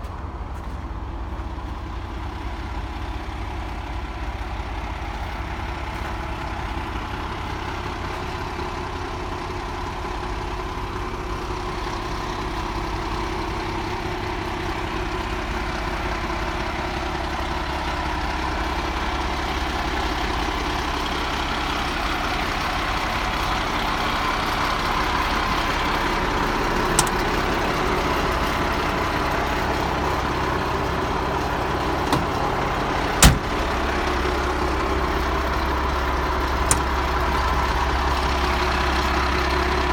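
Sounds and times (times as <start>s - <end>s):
diesel truck engine idling: 0.0s - 39.9s
sharp clicks: 26.9s - 27.4s, 36.5s - 37.2s.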